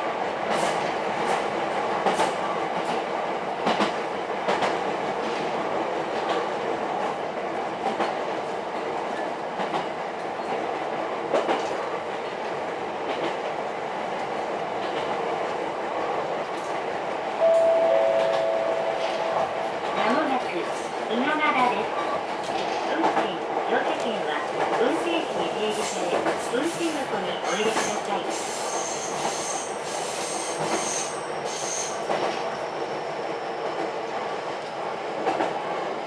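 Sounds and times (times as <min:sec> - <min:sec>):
train running rumble: 0:00.0 - 0:32.5
steady two-note tone: 0:17.4 - 0:19.7.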